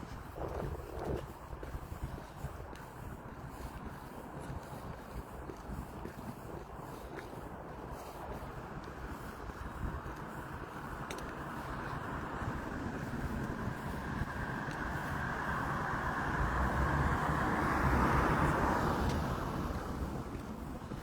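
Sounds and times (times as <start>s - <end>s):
car driving past: 12.2s - 20.9s.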